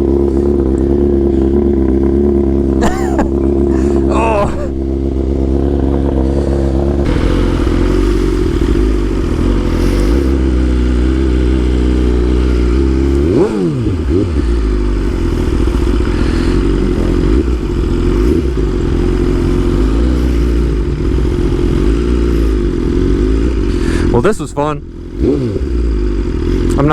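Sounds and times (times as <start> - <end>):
motorcycle engine running: 0.0 - 26.9.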